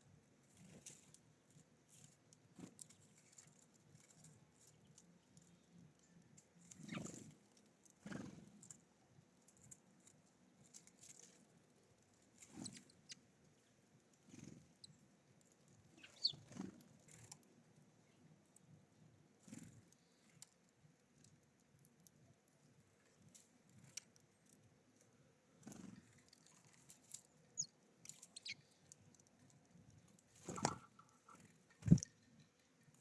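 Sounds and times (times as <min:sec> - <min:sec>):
short high bird chirp: 0:16.0 - 0:16.4, 0:28.4 - 0:28.6
birds landing and pecking: 0:30.2 - 0:32.2.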